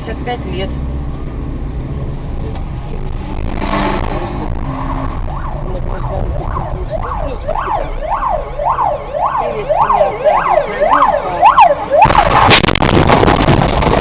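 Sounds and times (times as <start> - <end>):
loud rushing noise: 1.0 - 8.2, 11.7 - 14.0
siren yelping: 4.5 - 12.6.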